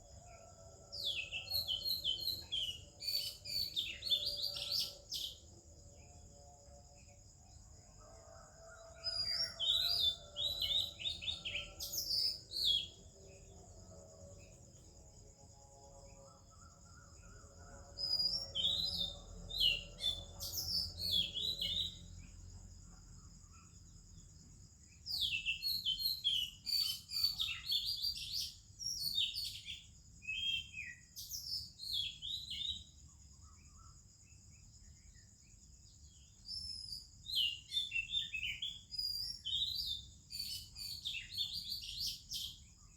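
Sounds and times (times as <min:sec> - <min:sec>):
bird singing whistled song: 0:01.0 - 0:05.4, 0:18.0 - 0:22.2, 0:25.1 - 0:33.0, 0:36.4 - 0:42.9.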